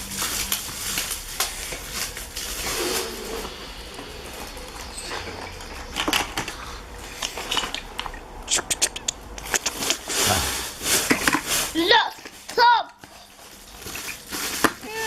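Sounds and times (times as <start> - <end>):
metal toy cars clicking and scraping: 4.9 - 14.8.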